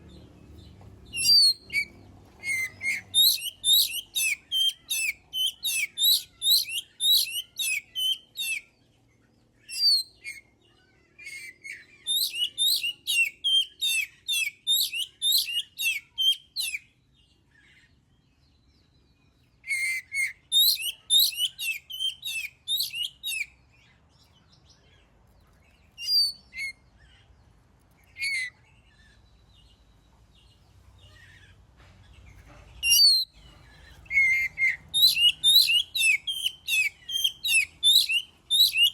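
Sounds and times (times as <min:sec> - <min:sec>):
bird singing whistled notes: 0:00.0 - 0:08.7, 0:09.6 - 0:10.5, 0:11.3 - 0:16.9, 0:19.6 - 0:23.6, 0:26.0 - 0:27.2, 0:28.1 - 0:29.9, 0:32.8 - 0:38.9.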